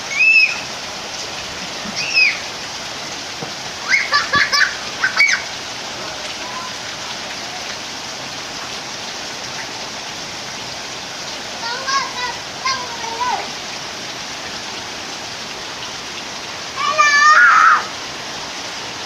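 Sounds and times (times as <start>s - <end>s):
heavy rain pouring: 0.0s - 19.0s
short high-pitched cries: 1.9s - 2.4s.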